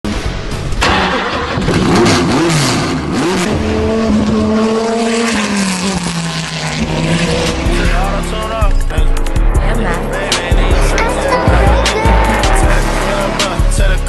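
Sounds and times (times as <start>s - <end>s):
race car engine revving: 0.1s - 14.0s.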